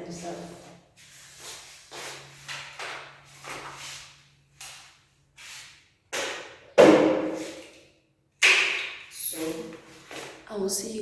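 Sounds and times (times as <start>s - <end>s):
loud knock: 6.8s - 7.4s.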